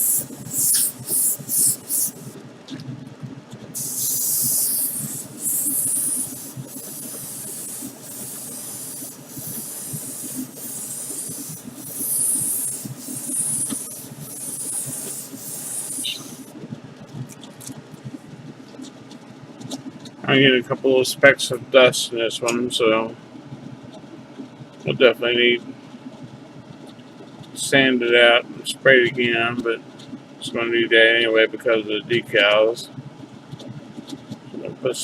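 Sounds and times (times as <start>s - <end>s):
spray gun hissing: 0.0s - 2.3s, 3.8s - 16.5s.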